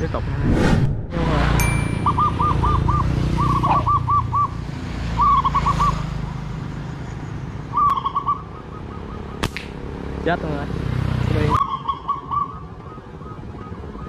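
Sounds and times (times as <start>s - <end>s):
bird whistling calls: 1.8s - 4.6s, 5.2s - 6.0s.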